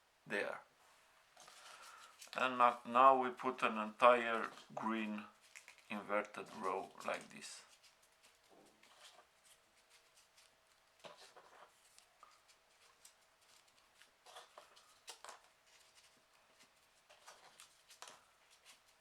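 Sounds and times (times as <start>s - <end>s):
soft clicks of folded paper: 1.4s - 2.8s, 4.3s - 19.0s
paper rustling: 1.4s - 19.0s.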